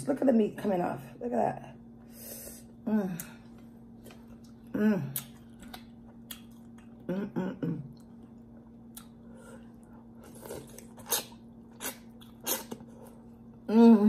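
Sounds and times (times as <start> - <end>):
faint steady hum: 0.0 - 14.0
wet chewing and sucking: 8.0 - 13.3
person humming: 13.7 - 14.0.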